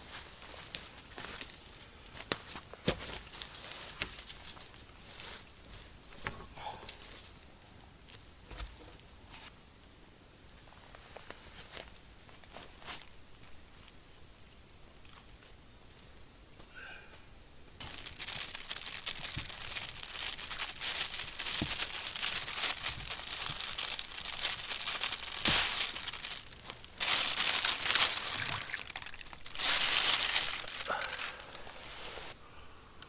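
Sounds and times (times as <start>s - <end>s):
crinkling rustling: 0.0s - 7.4s, 17.8s - 32.4s.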